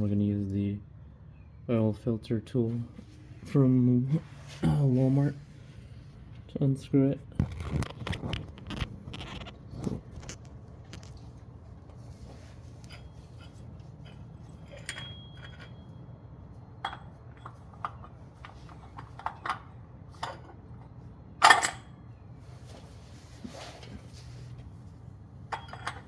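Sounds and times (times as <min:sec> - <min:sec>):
metallic clatter: 0:12.8 - 0:16.0, 0:25.5 - 0:26.0
wrench clinking on metal: 0:12.8 - 0:16.0, 0:21.4 - 0:22.0, 0:25.5 - 0:26.0.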